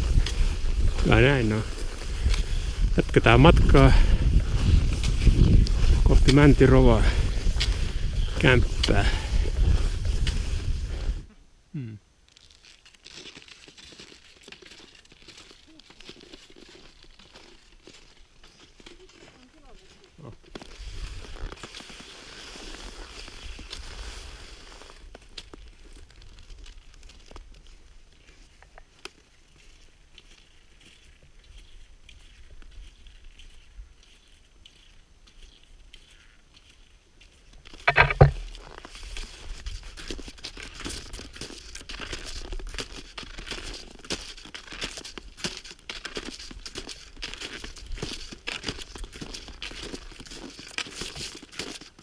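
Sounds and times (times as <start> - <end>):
skis sliding on snow: 0.0 - 11.2, 12.4 - 28.5, 38.5 - 52.0
wind rumble on microphone: 0.0 - 11.3
ski and pole clicks: 37.7 - 38.9
loud thump: 37.9 - 38.5.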